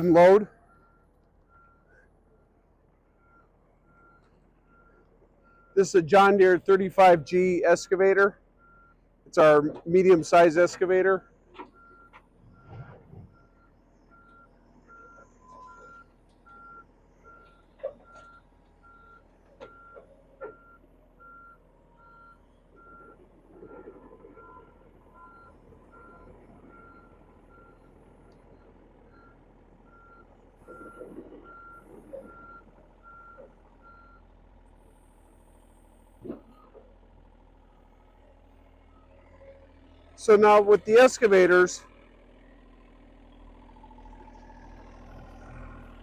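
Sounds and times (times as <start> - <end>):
excavator travel alarm beeping: 0.0 - 34.3, 40.2 - 41.8.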